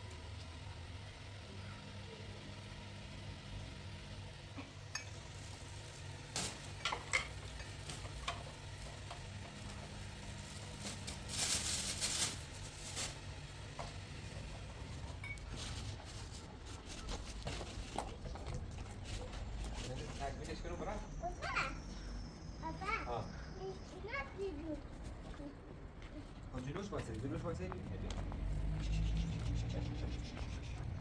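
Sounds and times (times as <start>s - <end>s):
utensil clinking on pot: 4.9s - 5.3s.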